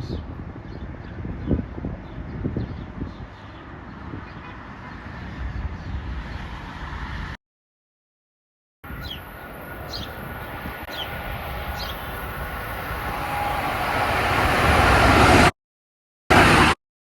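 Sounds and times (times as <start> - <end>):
train rumble and rail noise: 8.9 - 15.5, 16.3 - 16.8.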